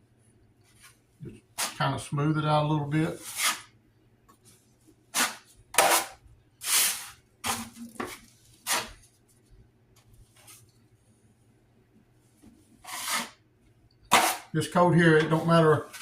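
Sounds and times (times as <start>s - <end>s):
drywall knife scraping compound: 1.6s - 1.8s, 3.0s - 3.8s, 5.1s - 9.0s, 12.8s - 13.4s, 14.1s - 16.0s.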